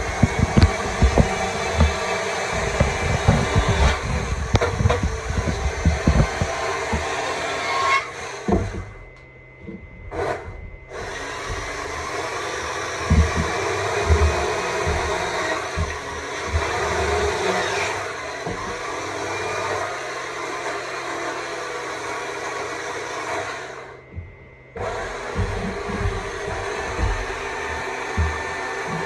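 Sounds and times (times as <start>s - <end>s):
chainsaw bar knocking against wood: 0.0s - 7.1s
chainsaw cutting wood: 0.0s - 9.1s, 10.1s - 24.0s, 24.8s - 29.0s.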